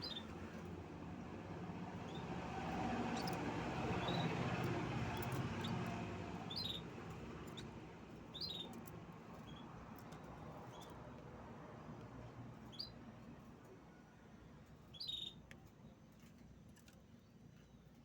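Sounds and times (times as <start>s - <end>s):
canary chirping: 0.0s - 0.4s, 2.0s - 2.3s, 3.1s - 9.7s, 12.7s - 13.0s, 14.9s - 15.4s.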